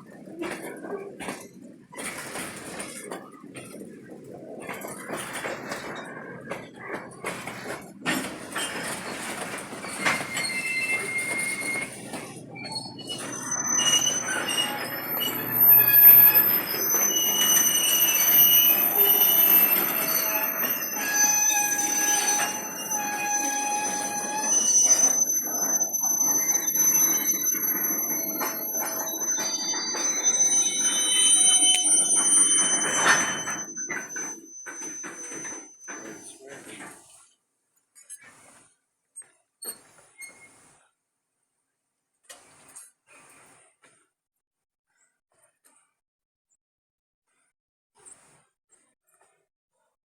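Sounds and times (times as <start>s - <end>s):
freight cars rumbling: 0.4s - 36.9s
wheel flanges squealing: 4.3s - 36.6s
knocks and clanks: 4.7s - 37.0s.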